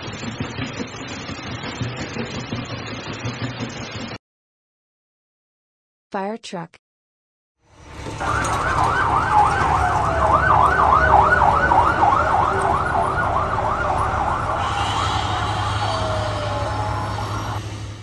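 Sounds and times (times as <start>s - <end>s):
truck engine rumble: 7.7s - 18.0s
fire engine siren yelping: 7.8s - 18.0s
lower siren tone sliding down: 8.2s - 17.9s.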